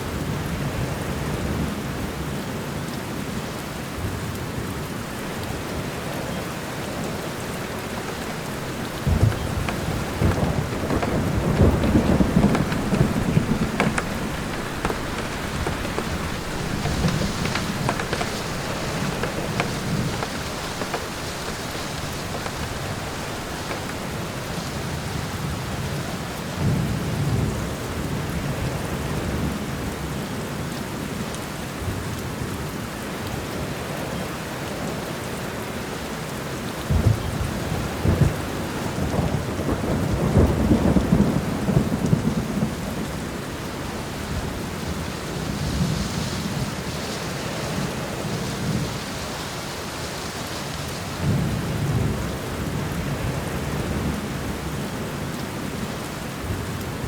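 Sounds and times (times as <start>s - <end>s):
rain falling in a forest: 0.0s - 57.0s
thunder rolling: 6.8s - 25.6s.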